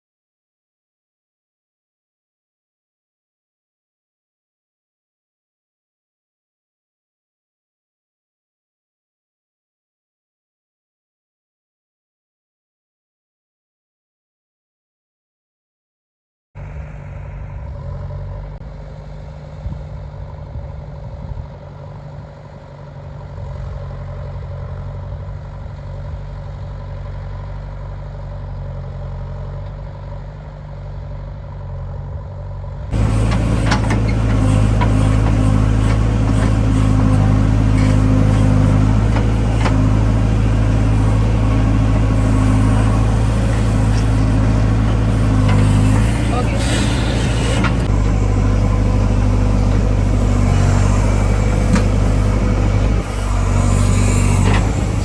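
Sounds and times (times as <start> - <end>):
heavy diesel engine running: 16.6 - 55.0.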